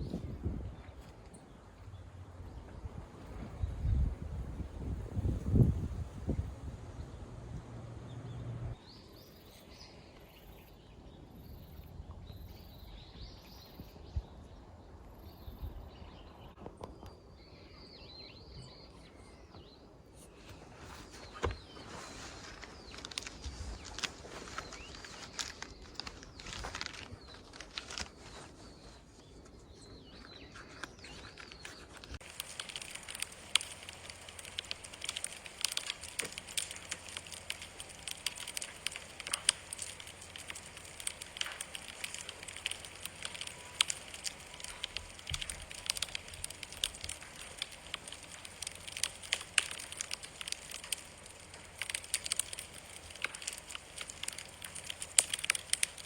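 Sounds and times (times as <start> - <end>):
campfire crackling and popping: 31.5 - 56.0.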